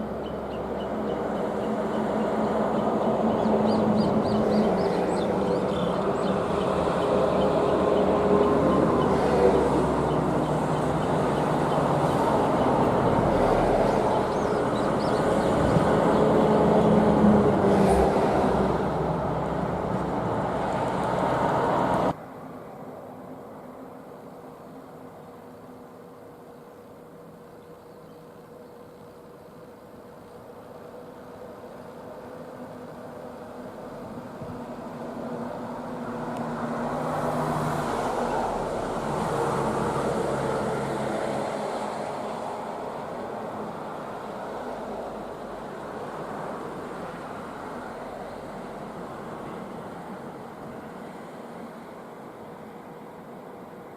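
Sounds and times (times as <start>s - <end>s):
vehicle passing on road: 0.0s - 22.2s, 33.1s - 52.5s.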